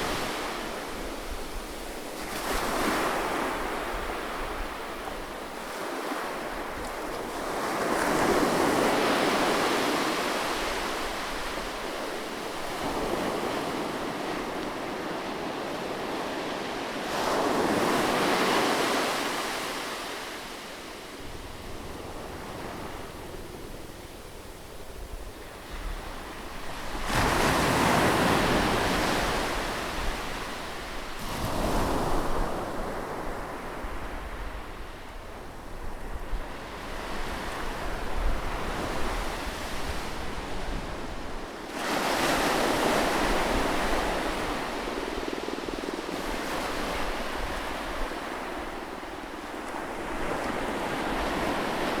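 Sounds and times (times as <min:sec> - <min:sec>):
waves breaking on shore: 0:00.0 - 0:34.3.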